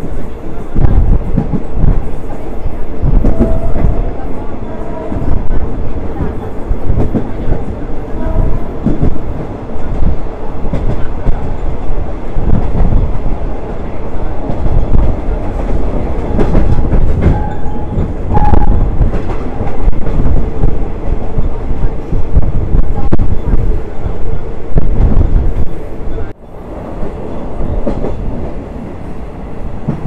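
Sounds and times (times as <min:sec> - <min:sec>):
train wheels rumbling on rails: 0:00.0 - 0:30.0
track knocks: 0:05.0 - 0:11.6, 0:14.4 - 0:23.6.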